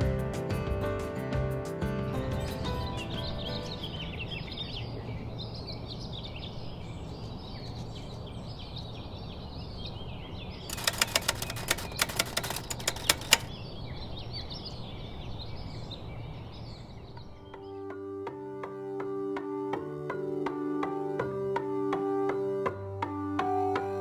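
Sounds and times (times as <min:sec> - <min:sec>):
sharp irregular clicks: 0:10.7 - 0:13.6.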